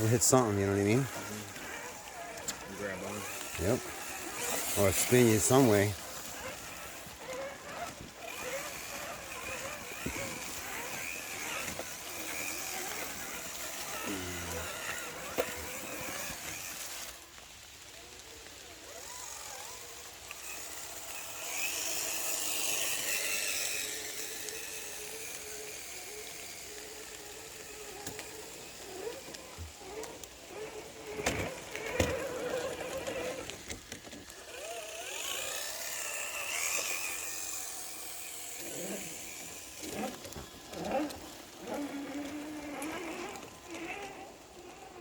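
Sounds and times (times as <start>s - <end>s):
toy car electric motor whining: 0.0s - 45.0s.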